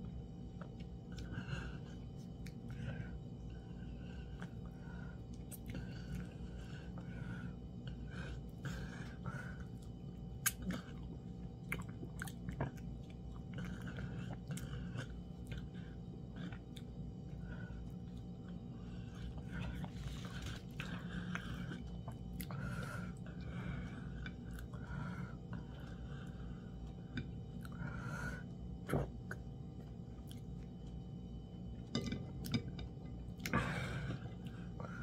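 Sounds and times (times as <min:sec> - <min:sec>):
person chewing and smacking: 0:00.4 - 0:02.9, 0:04.1 - 0:07.0, 0:07.8 - 0:23.5, 0:24.1 - 0:24.9, 0:28.8 - 0:34.8.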